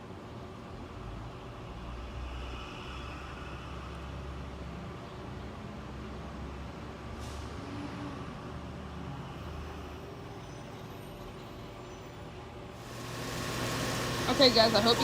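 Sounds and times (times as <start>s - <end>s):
air conditioner humming: 12.8s - 15.0s.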